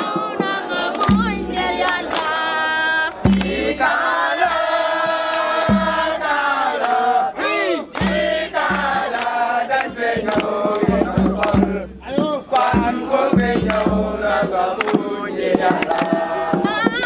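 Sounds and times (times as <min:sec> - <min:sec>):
group chanting and singing: 0:00.0 - 0:17.0.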